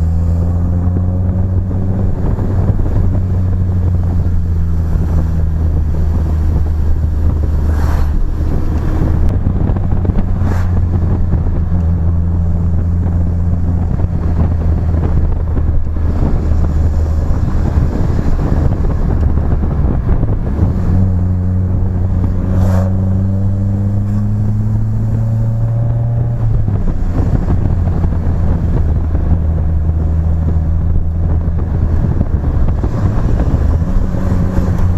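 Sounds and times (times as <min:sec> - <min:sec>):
car engine driving: 0:00.0 - 0:34.9
wind on microphone: 0:00.0 - 0:34.9.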